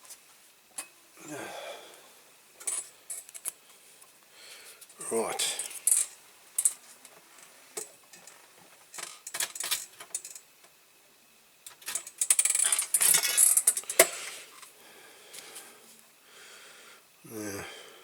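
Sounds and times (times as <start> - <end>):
metal parts and tools clinking: 11.8 - 14.2.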